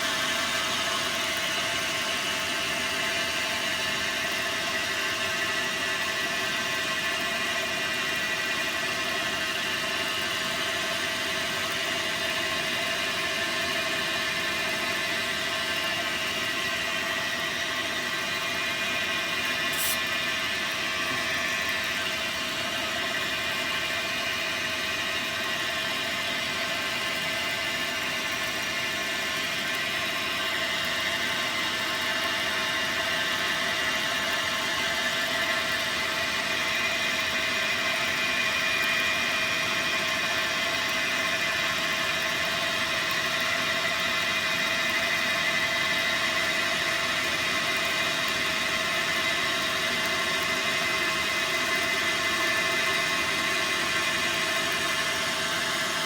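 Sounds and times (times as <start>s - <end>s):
lathe whirring: 0.0s - 56.0s
sharp click: 19.7s - 20.1s.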